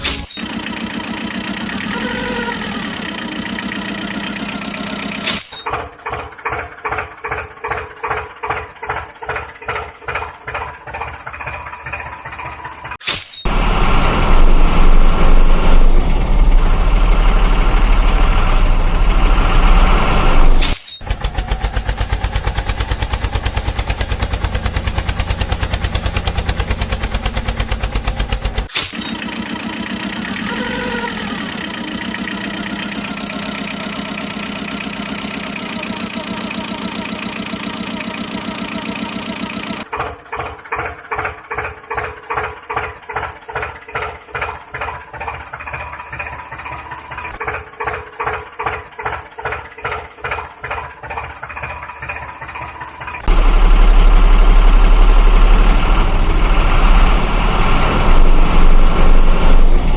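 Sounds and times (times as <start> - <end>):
engine drone: 0.0 - 7.8, 10.9 - 43.6, 52.0 - 59.9
loud low engine rumble: 0.0 - 12.9, 13.5 - 59.9
engine chugging: 0.0 - 59.9.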